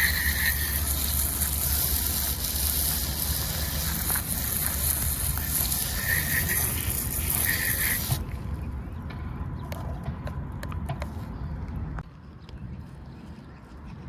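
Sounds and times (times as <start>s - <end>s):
spraying water hiss: 0.0s - 8.4s.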